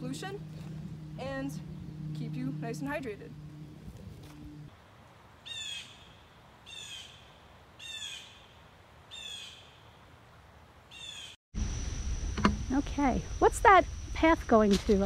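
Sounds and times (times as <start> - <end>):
bird calling: 5.4 - 8.5, 9.1 - 9.8, 10.9 - 11.4.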